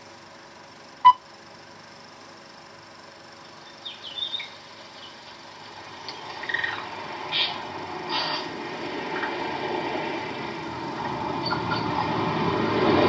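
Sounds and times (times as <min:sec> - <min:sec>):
faint high bird chirps: 0:03.5 - 0:05.5, 0:11.4 - 0:12.0.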